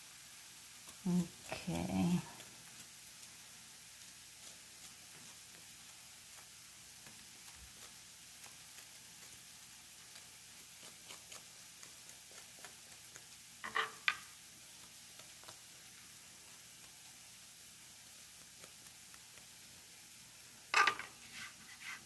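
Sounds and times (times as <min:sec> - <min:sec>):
onion frying in a pan: 0:00.0 - 0:22.0.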